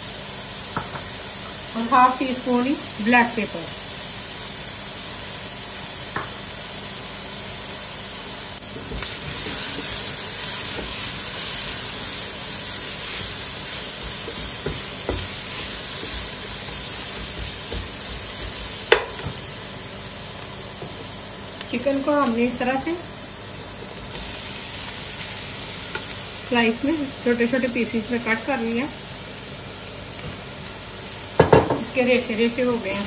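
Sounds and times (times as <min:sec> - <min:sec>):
vegetables sizzling in a pan: 0:00.0 - 0:33.0
spoon stirring in a pan: 0:08.7 - 0:19.5.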